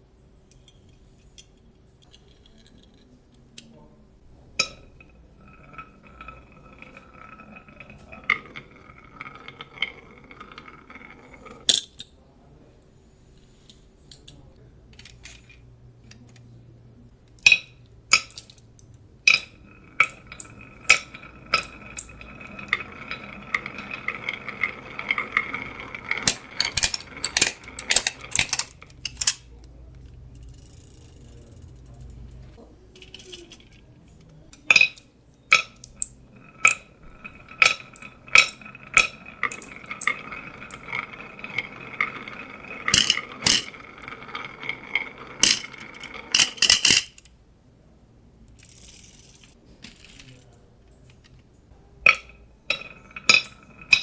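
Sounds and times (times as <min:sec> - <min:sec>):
marbles rolling on wooden track: 0:04.4 - 0:11.9, 0:17.4 - 0:47.3, 0:48.5 - 0:51.4, 0:52.0 - 0:54.0
marbles clacking against track: 0:04.6 - 0:12.0, 0:17.4 - 0:47.3, 0:52.0 - 0:54.0.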